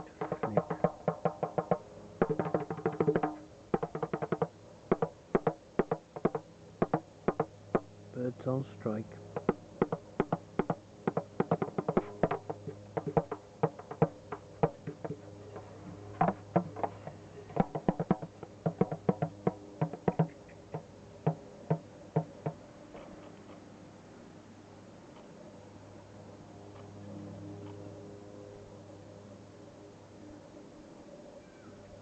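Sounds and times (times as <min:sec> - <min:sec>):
hand drumming: 0:00.0 - 0:07.9, 0:09.4 - 0:15.2, 0:16.2 - 0:22.6.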